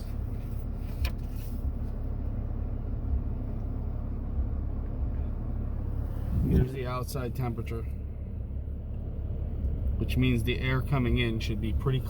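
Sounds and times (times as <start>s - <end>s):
pickup engine rumble: 0.0s - 12.0s.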